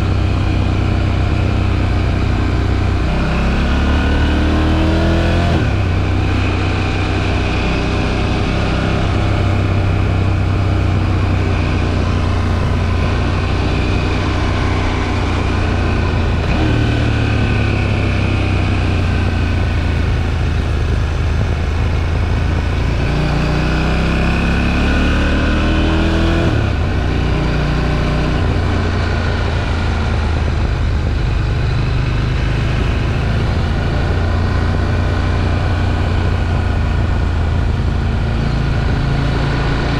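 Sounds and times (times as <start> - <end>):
motorcycle engine accelerating: 0.0 - 39.9
wind noise: 18.9 - 24.7, 25.4 - 39.9.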